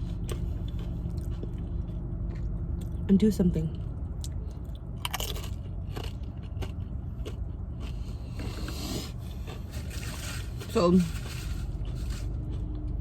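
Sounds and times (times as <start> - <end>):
air conditioning hum: 0.0 - 13.0
chewing and crunching: 0.0 - 13.0
scraping rustle: 8.5 - 12.4.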